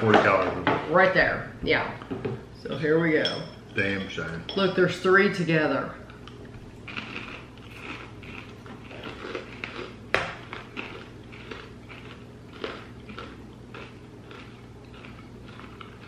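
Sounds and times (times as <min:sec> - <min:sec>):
crunchy popcorn chewing: 0:06.0 - 0:16.0.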